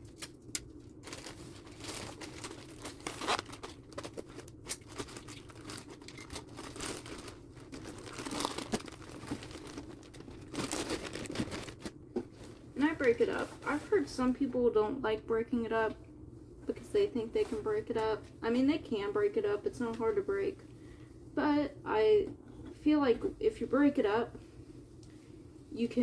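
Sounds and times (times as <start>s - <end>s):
paper crinkling and tearing: 0.0s - 12.0s.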